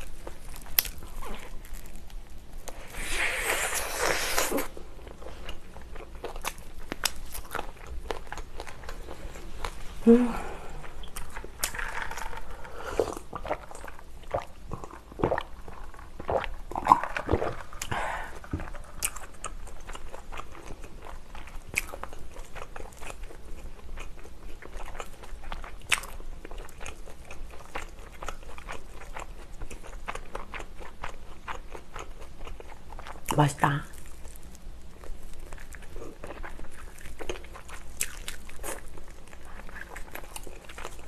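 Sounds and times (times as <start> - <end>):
chewing fried chicken: 0.0 - 2.8, 4.2 - 9.8, 10.8 - 41.0
sip from a glass: 2.8 - 4.7.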